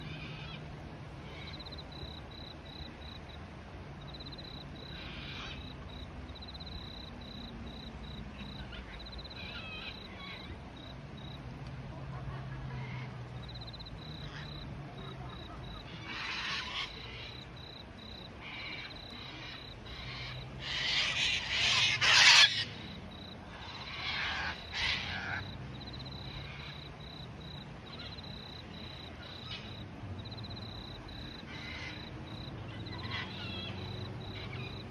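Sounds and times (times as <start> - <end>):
pulsing insect trill: 1.4 - 3.4, 4.0 - 4.9, 5.6 - 10.1, 13.4 - 34.9
bird calls: 12.8 - 34.9.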